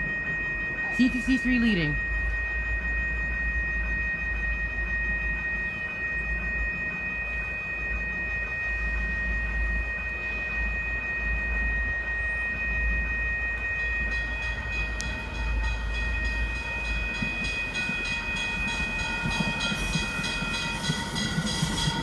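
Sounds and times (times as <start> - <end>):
repeating bell ringing: 0.0 - 2.0, 13.8 - 22.0
train arriving: 11.4 - 22.0
wheels clattering on rails: 14.0 - 22.0.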